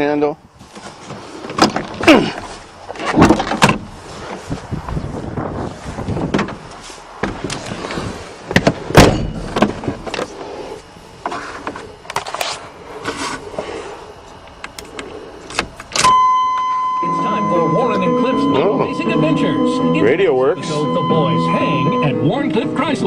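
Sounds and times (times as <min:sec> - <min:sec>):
clunks and rattles in truck cab: 0:00.6 - 0:10.3
steady high tone: 0:16.0 - 0:23.0.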